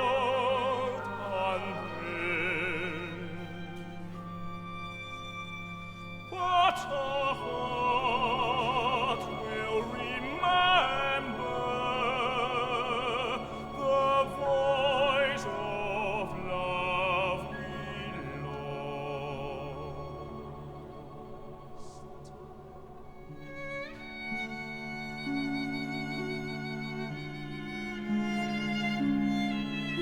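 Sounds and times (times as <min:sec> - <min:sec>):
operatic voice singing: 0:00.0 - 0:04.2, 0:06.2 - 0:24.1.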